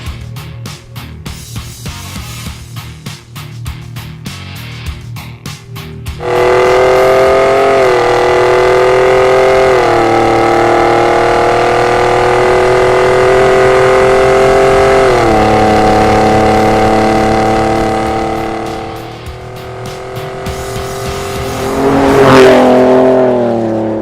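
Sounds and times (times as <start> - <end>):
engine exhaust drone: 5.3 - 24.0.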